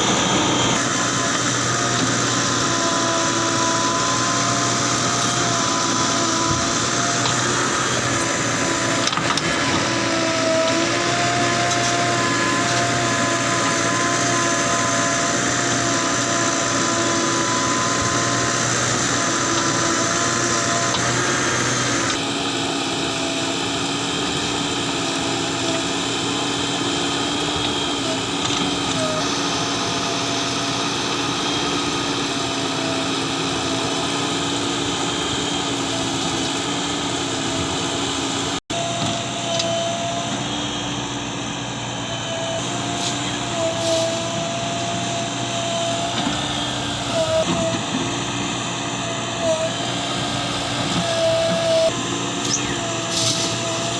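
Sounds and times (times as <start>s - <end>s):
diesel engine humming with whine: 0.0s - 53.9s.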